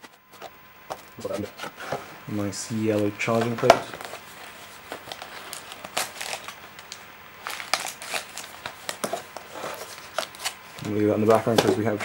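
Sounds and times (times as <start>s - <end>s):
packaging crinkling: 2.8s - 12.0s.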